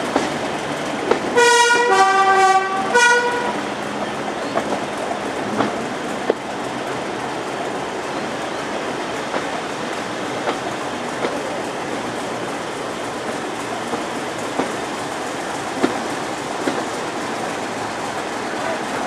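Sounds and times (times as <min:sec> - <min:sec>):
train wheel and air noise: 0:00.0 - 0:19.0
wheels clicking over rails: 0:03.8 - 0:19.0.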